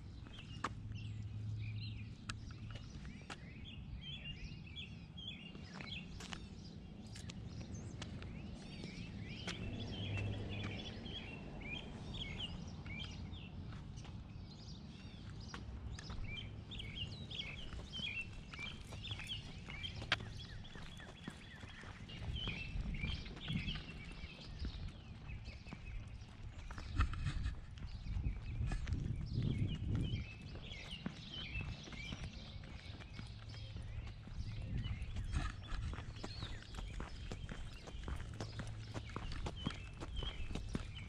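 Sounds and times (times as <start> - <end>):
footsteps on pavement: 0.0 - 41.0
birds chirping and singing: 0.1 - 41.0.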